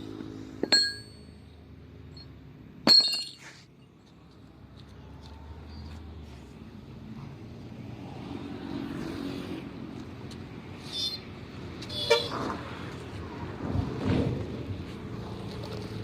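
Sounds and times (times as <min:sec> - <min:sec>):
vehicle passing with low hum: 0:00.0 - 0:02.8, 0:03.6 - 0:16.0
high horn toot: 0:11.9 - 0:12.4.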